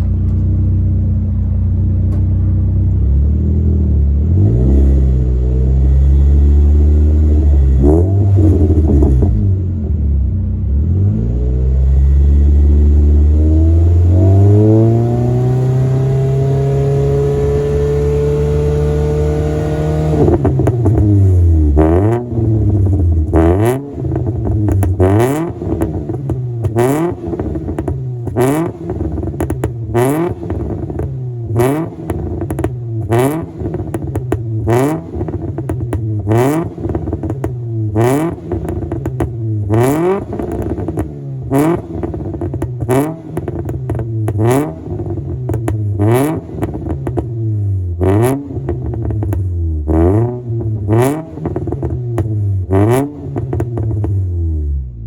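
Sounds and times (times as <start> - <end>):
car engine revving: 0.0 - 55.0
exhaust crackle: 18.8 - 55.0.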